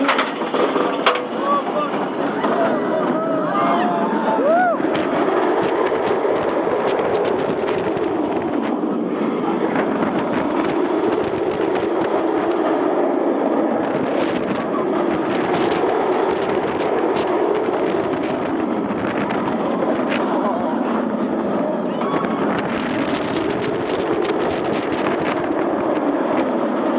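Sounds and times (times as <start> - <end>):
roller coaster train in motion: 0.0 - 26.9
wind rushing over microphone: 1.8 - 26.9.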